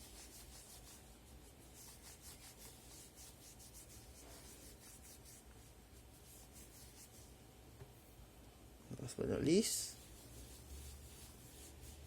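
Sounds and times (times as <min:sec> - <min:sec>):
cloth wiping phone screen: 0:00.0 - 0:07.4, 0:09.5 - 0:12.0.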